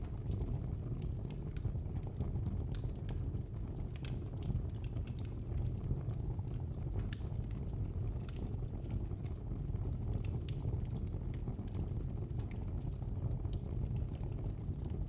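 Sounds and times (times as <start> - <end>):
low rush of flames: 0.0 - 15.0
wood fire crackling: 0.0 - 15.0.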